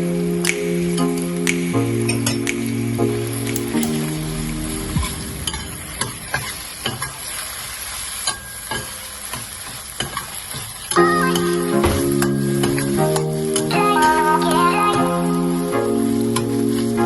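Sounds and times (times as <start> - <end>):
background music: 0.0 - 6.8, 11.0 - 17.0.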